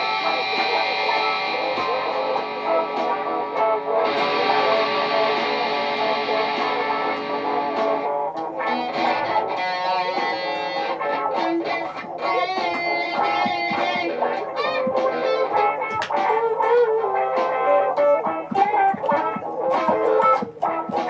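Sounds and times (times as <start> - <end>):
sustained drone: 0.0 - 8.0
electric guitar with effects: 0.0 - 21.0.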